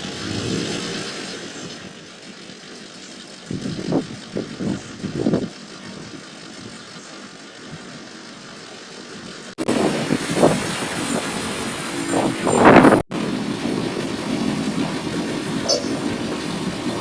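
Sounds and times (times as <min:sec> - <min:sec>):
street traffic rumble: 0:09.6 - 0:17.0.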